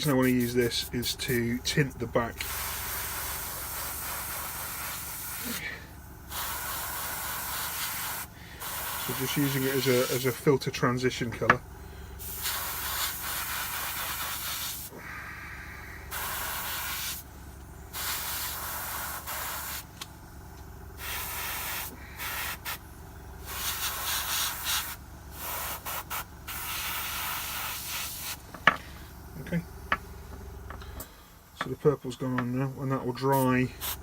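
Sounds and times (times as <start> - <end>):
compressor humming: 0.0 - 34.0
airbrush spraying hiss: 2.4 - 10.4, 12.2 - 15.0, 16.0 - 17.3, 17.9 - 20.0, 21.0 - 22.8, 23.4 - 28.5, 33.3 - 34.0.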